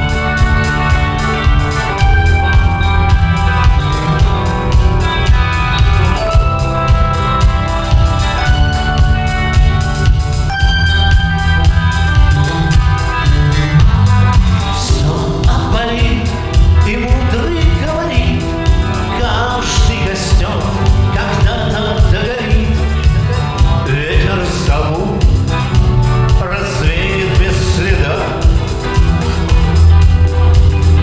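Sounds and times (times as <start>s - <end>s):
rock band playing: 0.0s - 31.0s
person singing: 14.5s - 25.6s, 26.3s - 29.5s.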